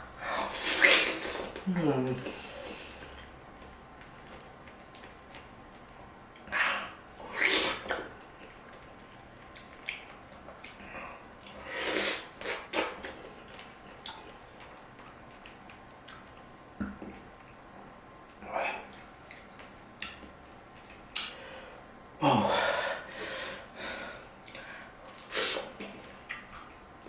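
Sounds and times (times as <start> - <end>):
person chewing juicy fruit: 2.6 - 21.4, 24.4 - 26.8
wet mouth clicks: 21.1 - 21.4.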